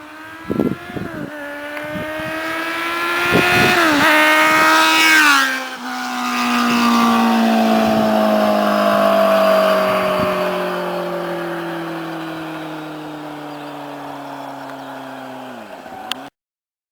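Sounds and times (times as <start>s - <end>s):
motorcycle engine at high revs: 0.0s - 16.3s.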